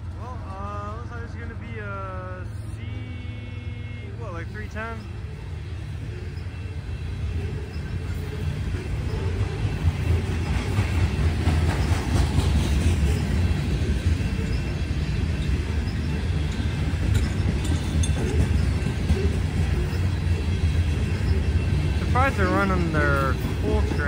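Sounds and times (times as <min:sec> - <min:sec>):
diesel locomotive engine drone: 0:00.0 - 0:24.0
wheels clicking over rail joints: 0:07.3 - 0:24.0.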